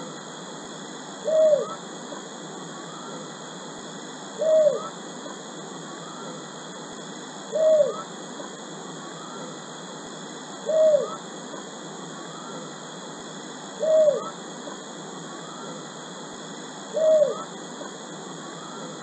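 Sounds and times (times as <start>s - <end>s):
steady hiss: 0.0s - 19.0s
bird hooting call: 1.2s - 1.8s, 4.3s - 5.0s, 5.9s - 6.5s, 7.5s - 8.1s, 9.0s - 9.6s, 10.6s - 11.6s, 12.2s - 12.8s, 13.8s - 14.4s, 15.2s - 16.0s, 16.9s - 19.0s.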